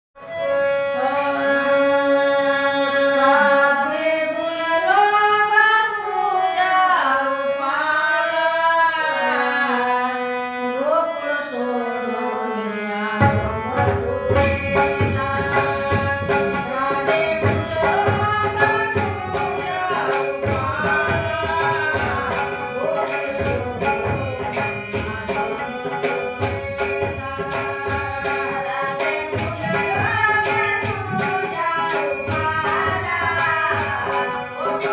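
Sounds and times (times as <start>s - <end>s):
harmonium: 0.2s - 34.9s
tabla: 0.2s - 34.9s
woman singing: 0.8s - 34.9s
high-pitched percussion beat: 14.4s - 34.9s.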